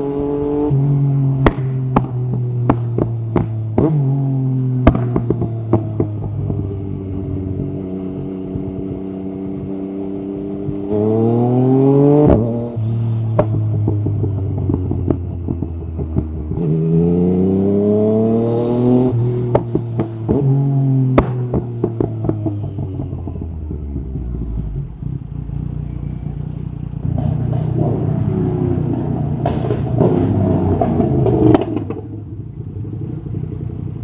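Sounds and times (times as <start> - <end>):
motorcycle engine revving: 0.0 - 34.0
exhaust pops crackling: 1.4 - 4.0, 4.8 - 6.6.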